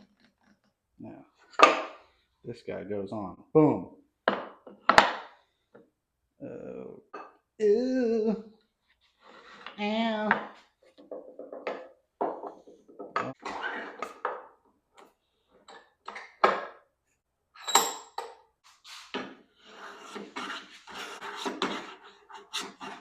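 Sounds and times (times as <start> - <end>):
rasping rub of metal: 18.9 - 23.0.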